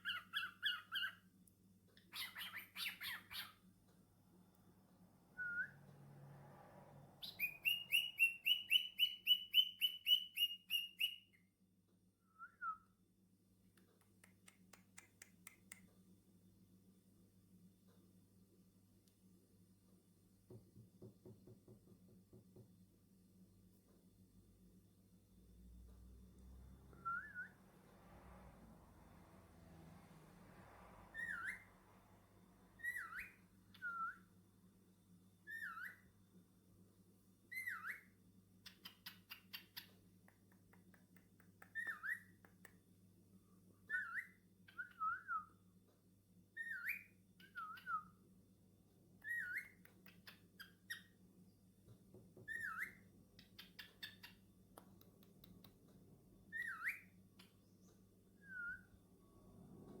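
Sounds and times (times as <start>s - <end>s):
cockatiel whistled chirps: 0.0s - 1.2s, 2.1s - 3.6s, 5.4s - 5.8s, 7.2s - 11.4s, 27.0s - 27.6s, 31.1s - 31.7s, 32.8s - 34.3s, 35.4s - 36.0s, 37.5s - 39.9s, 41.7s - 42.3s, 43.9s - 45.6s, 46.6s - 48.2s, 49.2s - 51.1s, 52.4s - 54.3s, 56.5s - 57.1s, 58.4s - 59.0s.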